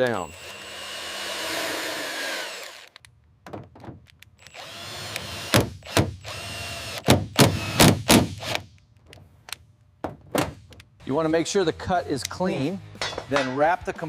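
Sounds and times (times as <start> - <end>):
power drill drilling: 0.0 - 3.0, 4.4 - 8.6.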